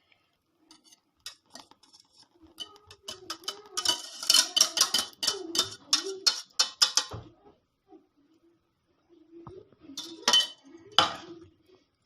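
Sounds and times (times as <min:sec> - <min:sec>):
utensil scraping a dish: 0:00.7 - 0:07.2, 0:10.0 - 0:11.2.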